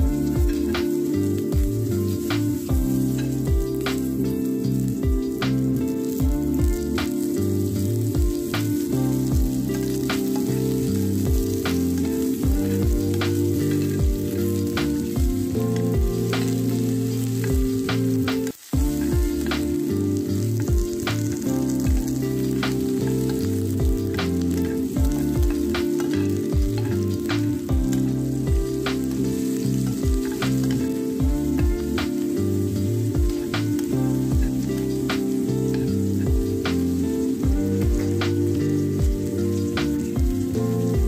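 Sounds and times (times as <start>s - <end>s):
background music with steady beat: 0.0s - 41.0s
onions sizzling in frying pan: 0.0s - 41.0s
spoon stirring in pan: 5.3s - 37.4s.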